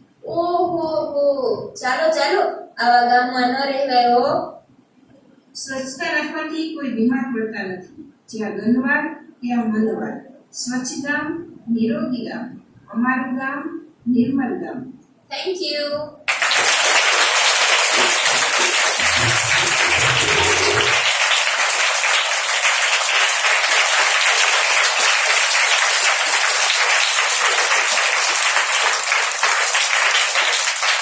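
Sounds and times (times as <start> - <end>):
audience applause: 16.3 - 31.0.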